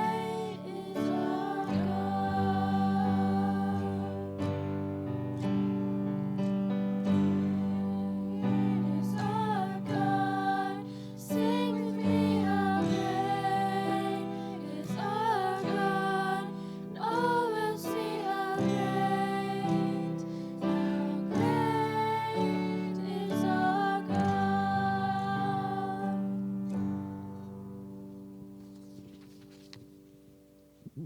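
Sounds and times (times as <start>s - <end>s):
person singing: 0.0s - 4.6s, 7.1s - 26.3s
acoustic guitar: 0.0s - 31.0s.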